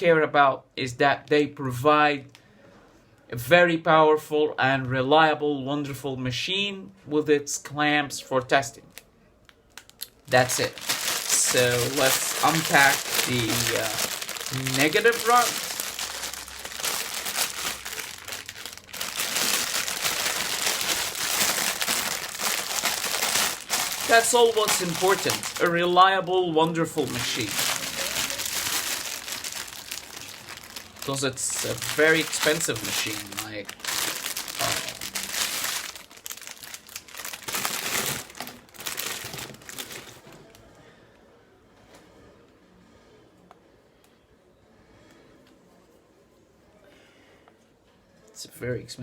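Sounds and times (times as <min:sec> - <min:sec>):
packaging crinkling and rustling: 0:08.9 - 0:40.6.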